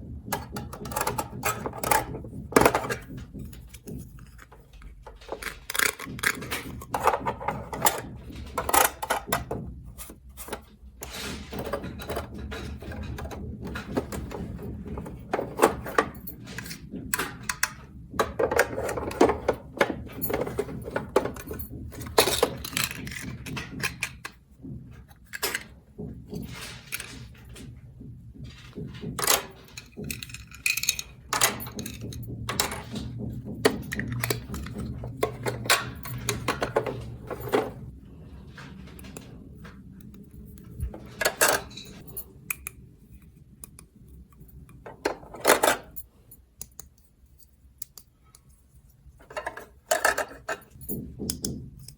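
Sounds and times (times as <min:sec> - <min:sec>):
toy pieces clicking and clattering: 0:05.2 - 0:09.2, 0:20.3 - 0:24.4, 0:29.2 - 0:32.9.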